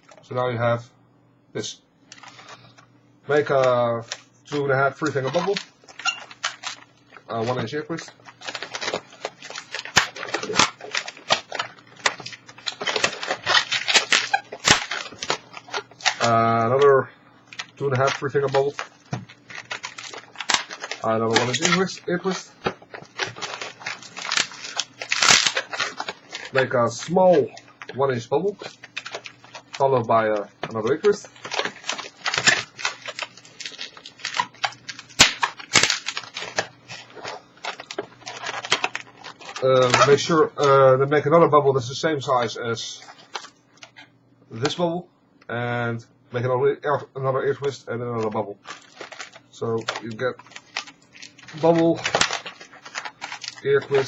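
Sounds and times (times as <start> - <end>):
balloon squeaking and crackling: 5.1 - 16.5, 17.6 - 40.3, 48.4 - 54.0
balloon squeaking as twisted: 5.4 - 6.6, 12.7 - 16.2.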